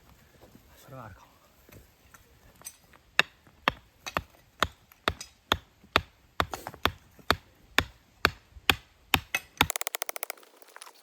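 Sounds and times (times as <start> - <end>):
hand tool striking stony ground: 3.2 - 11.0.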